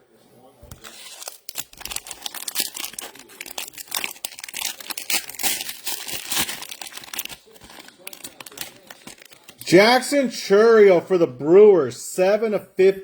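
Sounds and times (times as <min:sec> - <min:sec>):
plastic wrappers crinkling and tearing: 0:00.7 - 0:09.7.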